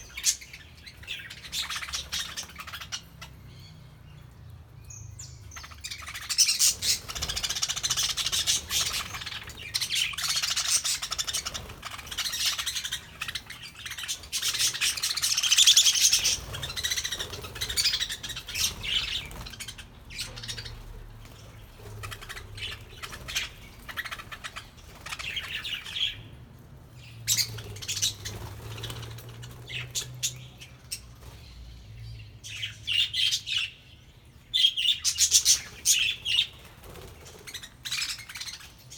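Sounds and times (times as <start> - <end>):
budgerigars chattering: 0.0 - 3.3, 5.6 - 21.0, 21.7 - 26.2.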